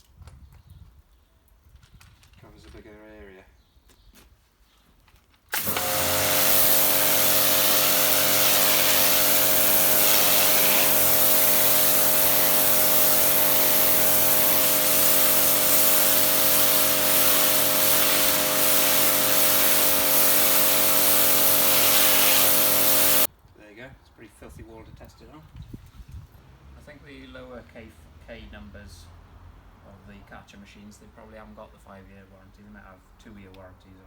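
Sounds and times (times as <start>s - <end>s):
pressure washer motor running: 5.5s - 23.3s
high-pressure water jet hissing: 5.6s - 23.3s.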